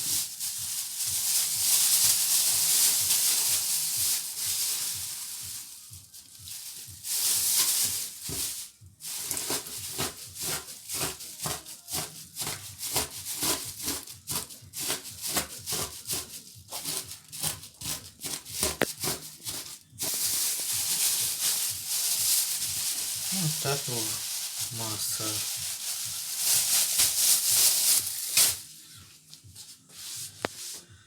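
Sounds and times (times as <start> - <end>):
steady hiss: 0.0 - 9.4, 20.0 - 29.3
cake mixture stirred in bowl: 0.0 - 28.7.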